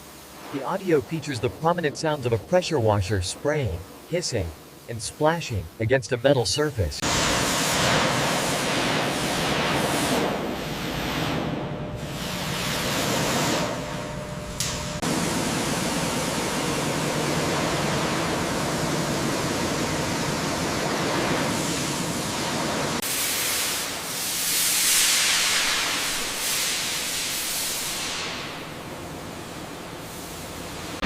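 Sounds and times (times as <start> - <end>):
pressure washer spraying metal: 15.1 - 28.6.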